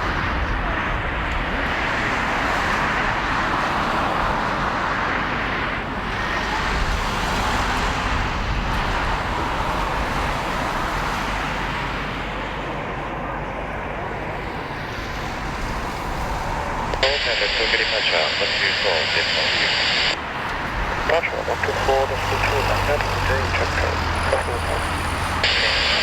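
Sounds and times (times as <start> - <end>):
jet engine rushing: 13.7 - 26.0.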